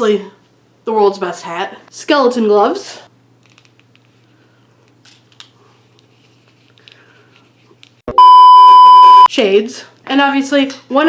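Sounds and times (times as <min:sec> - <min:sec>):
faint clicks and rustles: 0:03.4 - 0:08.0
censor bleep tone: 0:08.1 - 0:09.3.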